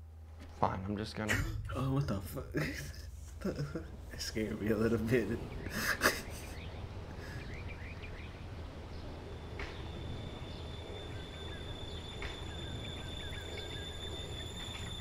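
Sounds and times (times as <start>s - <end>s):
low outdoor hum: 0.0s - 15.0s
birds chirping: 0.4s - 15.0s
thin high steady tone: 9.2s - 15.0s.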